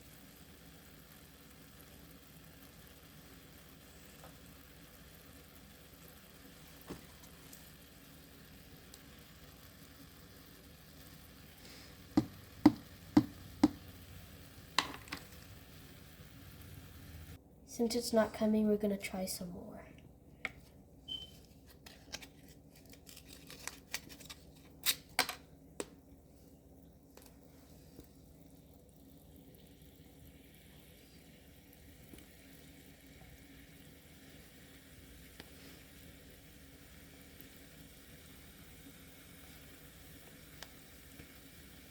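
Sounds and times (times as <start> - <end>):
hands handling small objects: 21.5 - 25.4.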